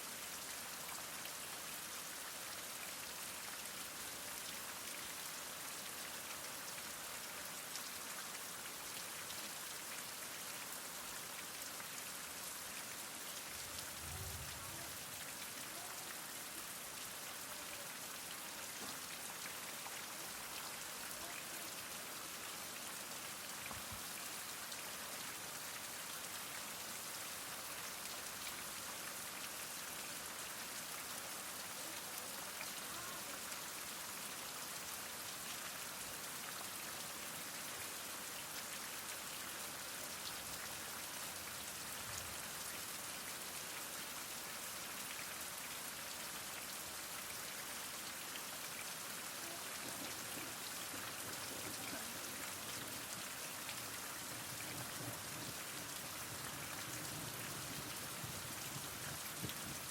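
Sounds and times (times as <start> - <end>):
heavy rain falling: 11.6 - 26.6, 46.5 - 59.9.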